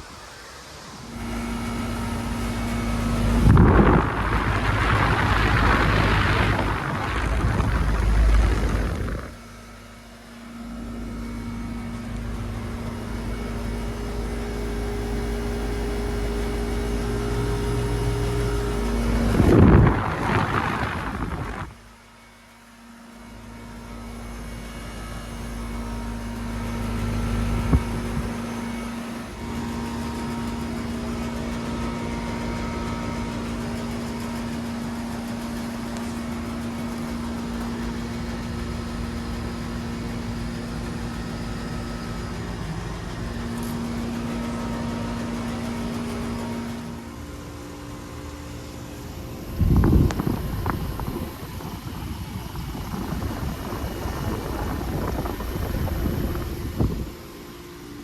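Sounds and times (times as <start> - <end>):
fan noise: 0.0 - 58.0
heat pump compressor humming: 0.0 - 58.0
loud rushing noise: 3.0 - 9.4.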